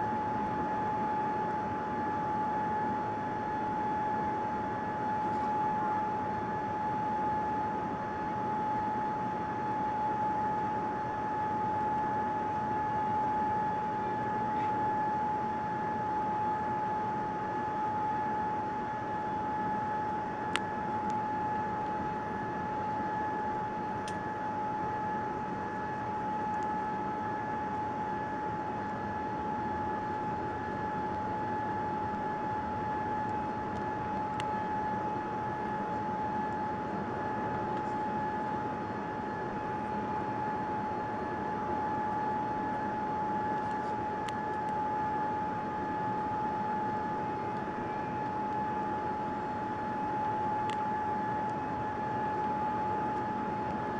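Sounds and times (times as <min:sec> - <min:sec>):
airliner cabin noise: 0:00.0 - 0:53.9.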